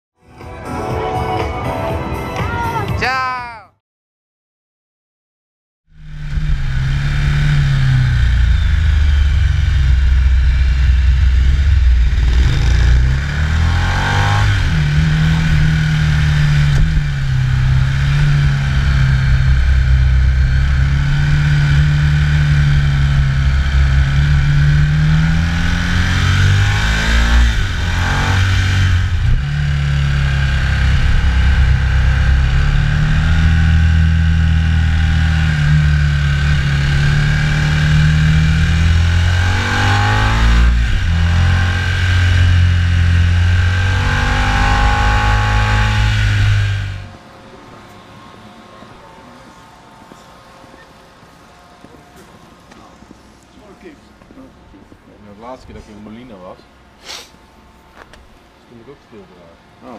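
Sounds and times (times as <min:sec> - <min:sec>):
motorcycle engine revving: 0:05.9 - 0:48.8.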